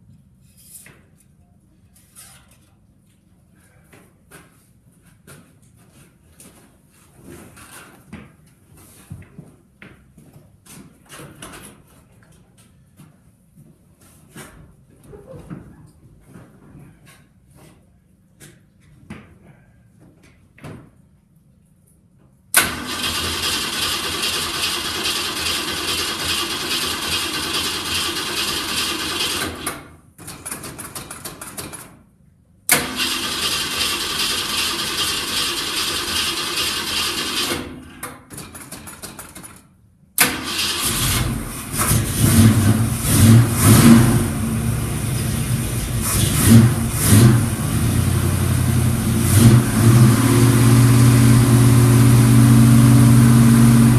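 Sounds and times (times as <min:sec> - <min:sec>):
car engine cranking: 0:40.2 - 0:53.9
engine running rough and revving: 0:40.4 - 0:53.9.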